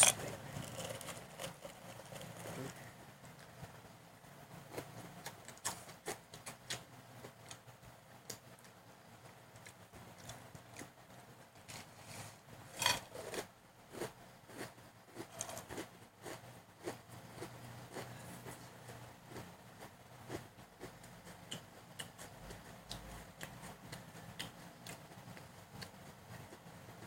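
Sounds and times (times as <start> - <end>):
crispy potato sticks crunching: 0.0 - 2.8.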